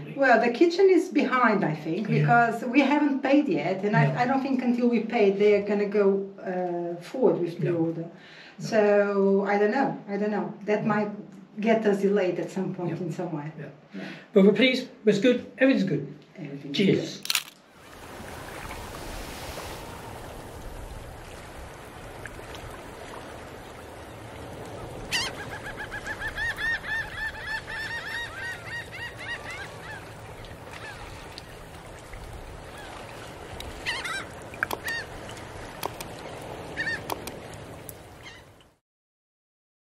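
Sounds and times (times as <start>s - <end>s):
bird calling: 24.8s - 31.7s, 33.7s - 37.4s
clicks: 34.6s - 35.0s, 35.8s - 36.1s, 37.0s - 38.0s.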